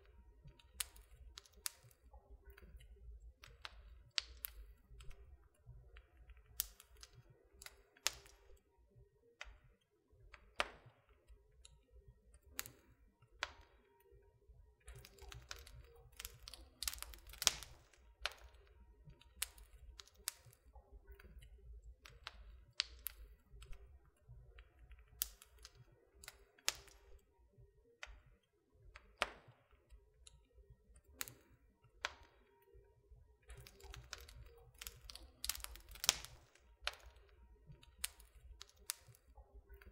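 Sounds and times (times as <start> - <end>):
wood fire crackling: 0.0 - 8.6, 12.4 - 13.7, 14.8 - 27.2, 31.0 - 32.3, 33.4 - 39.9.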